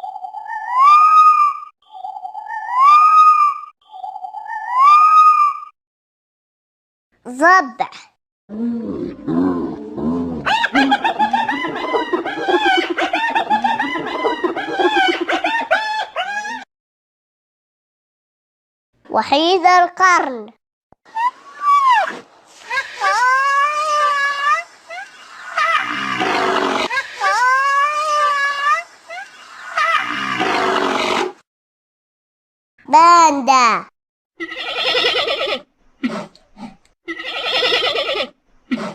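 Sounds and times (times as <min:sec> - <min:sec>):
squealing cries: 0:00.6 - 0:01.6, 0:02.6 - 0:03.6, 0:04.6 - 0:05.7, 0:09.0 - 0:16.7, 0:21.1 - 0:22.2, 0:23.0 - 0:28.8, 0:29.6 - 0:31.3, 0:34.4 - 0:35.6, 0:37.1 - 0:38.9
hyena giggling calls: 0:09.2 - 0:16.6, 0:24.9 - 0:28.3.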